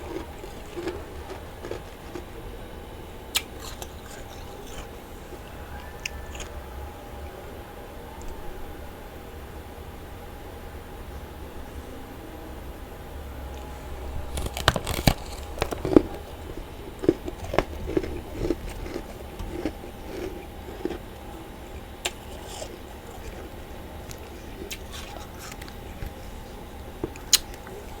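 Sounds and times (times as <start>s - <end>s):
person chewing crunchy frost: 0.0s - 2.6s, 3.3s - 6.6s, 13.5s - 28.0s.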